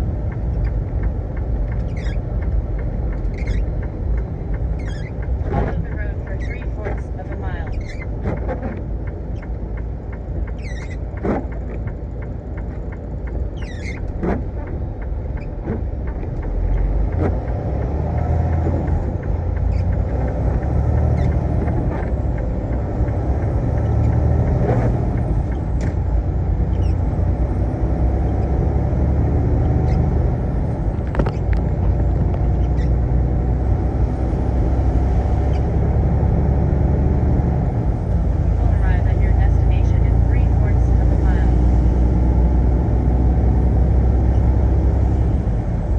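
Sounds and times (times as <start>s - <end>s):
truck engine and road rumble: 0.0s - 45.9s.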